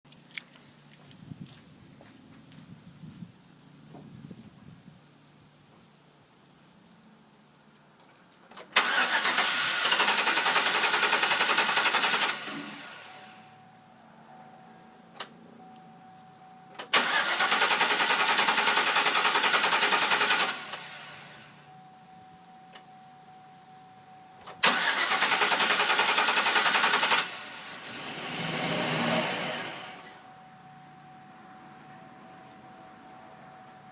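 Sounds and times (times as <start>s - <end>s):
engine cranking by starter: 8.6s - 13.4s, 16.8s - 21.5s, 24.5s - 30.2s.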